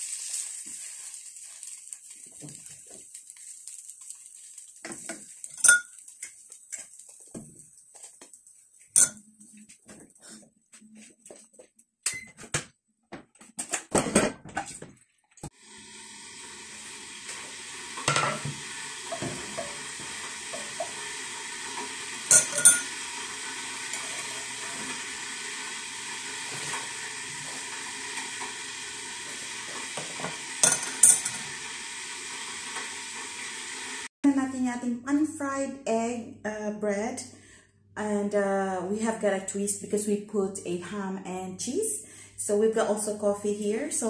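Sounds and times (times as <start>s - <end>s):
food sizzling in pan: 0.0s - 8.2s, 15.5s - 34.1s
spatula scraping pan: 18.0s - 31.6s.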